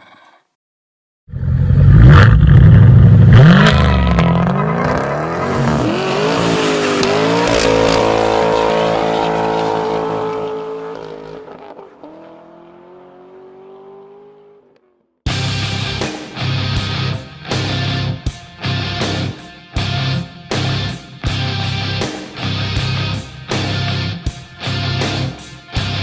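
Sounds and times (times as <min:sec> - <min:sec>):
car engine accelerating: 0:01.4 - 0:16.0.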